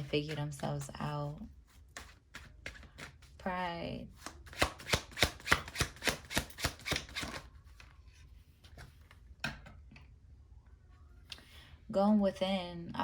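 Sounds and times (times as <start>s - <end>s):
cards being shuffled by hand: 0.0s - 3.4s.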